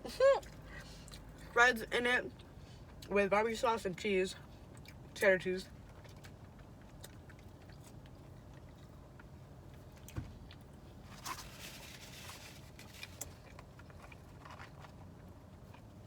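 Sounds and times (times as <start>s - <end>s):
person chewing food: 2.4s - 3.1s, 4.4s - 16.0s.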